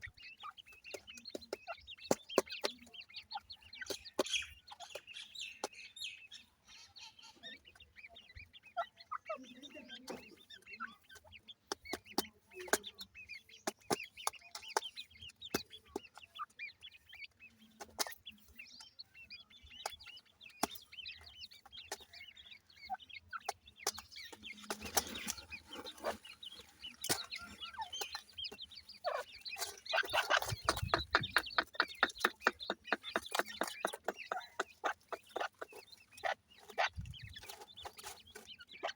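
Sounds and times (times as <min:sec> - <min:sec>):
chicks peeping and chirping: 0:00.0 - 0:38.9.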